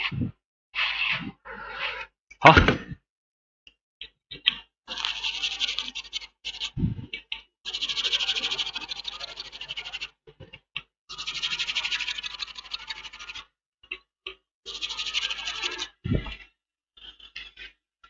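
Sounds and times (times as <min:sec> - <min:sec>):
brush scrubbing circuit board: 0:04.9 - 0:07.0, 0:07.7 - 0:10.2, 0:11.1 - 0:13.5, 0:14.7 - 0:16.4.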